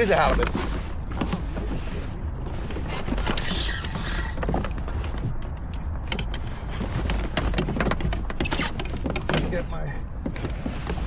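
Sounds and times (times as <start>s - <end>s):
fishing reel clicking and creaking: 3.2s - 5.0s.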